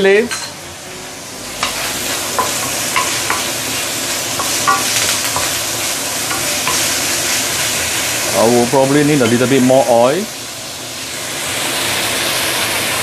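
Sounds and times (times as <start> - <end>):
food sizzling in hot oil: 0.0 - 13.0
utensil clicking on wok: 2.4 - 3.6, 4.4 - 7.4.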